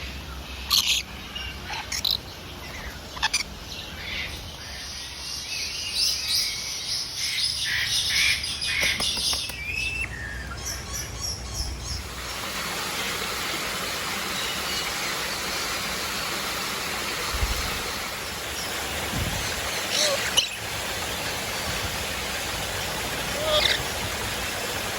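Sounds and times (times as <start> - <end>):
birds chirping and tweeting: 0.0 - 24.9
steady hiss: 11.8 - 24.9.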